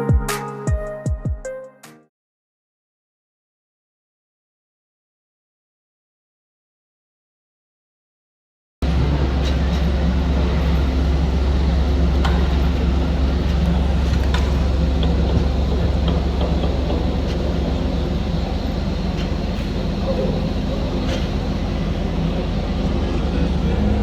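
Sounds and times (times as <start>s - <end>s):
engine running low rumble: 8.8s - 24.0s.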